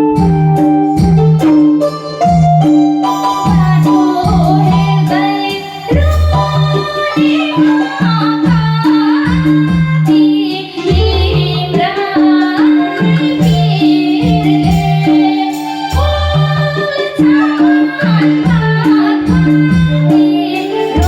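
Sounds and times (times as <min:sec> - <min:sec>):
gliding melodic lead: 0:00.0 - 0:09.1
drum and bass beat: 0:00.0 - 0:21.0.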